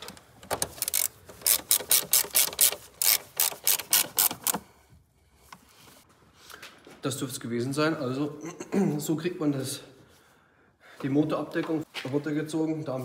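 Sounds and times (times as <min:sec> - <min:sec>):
hand ratchet clicking: 0:00.6 - 0:04.6.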